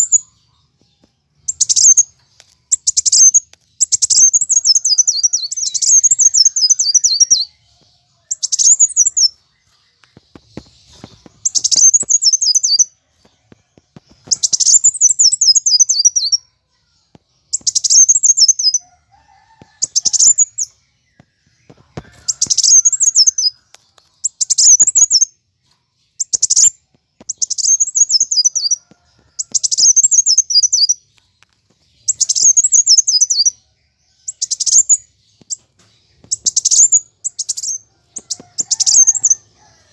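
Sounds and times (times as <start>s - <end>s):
sunbird singing: 0.0s - 13.1s, 14.2s - 39.9s.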